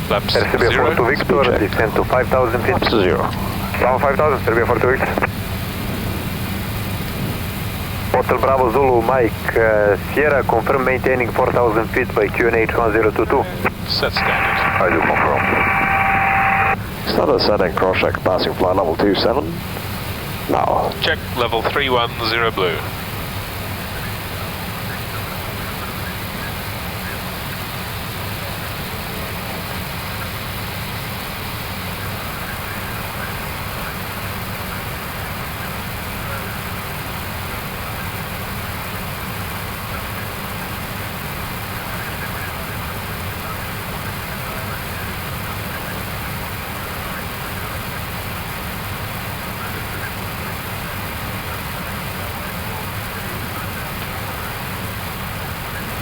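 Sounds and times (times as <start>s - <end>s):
heavy low rumble: 0.0s - 22.3s
low aircraft hum: 0.0s - 56.0s.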